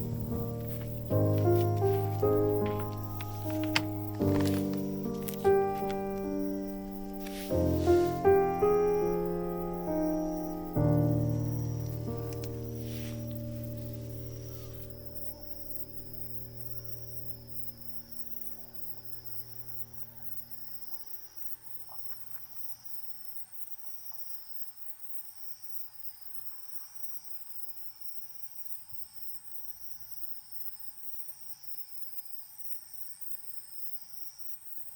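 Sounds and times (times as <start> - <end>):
background music: 0.0 - 17.7
higher insect trill: 0.0 - 21.9
insects trilling: 0.0 - 34.9.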